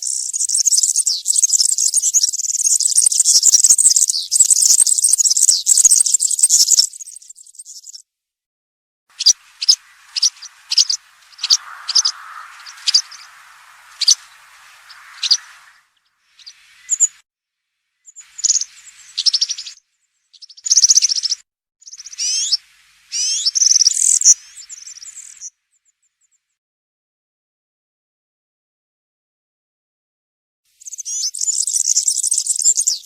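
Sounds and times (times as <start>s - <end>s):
bird jingling song: 9.2s - 15.8s, 16.4s - 17.2s, 18.1s - 19.8s
bird sharp high single notes: 9.2s - 17.1s.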